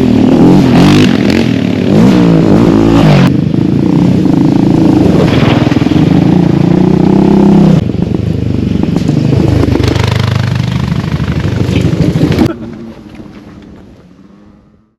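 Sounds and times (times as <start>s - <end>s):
engine revving at high revs: 0.0s - 7.8s.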